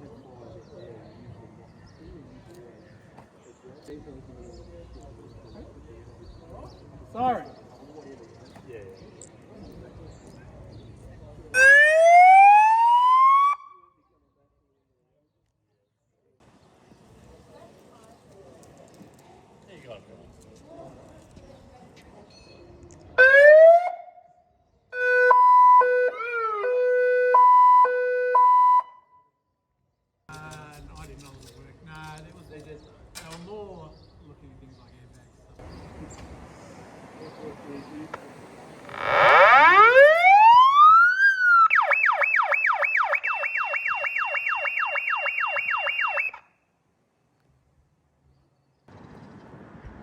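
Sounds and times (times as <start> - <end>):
electronic fire truck siren: 11.6 - 13.8, 23.2 - 24.1, 25.0 - 29.1, 38.8 - 46.4.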